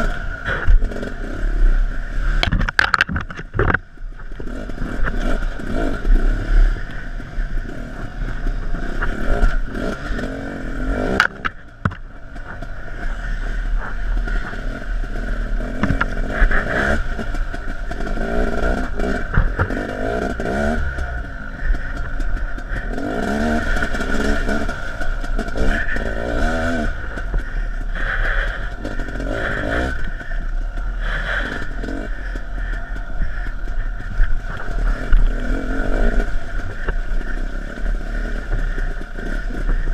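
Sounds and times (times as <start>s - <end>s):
dirt bike engine revving: 0.0s - 39.9s
sharp knocks and rattles: 2.4s - 5.9s, 11.1s - 30.6s.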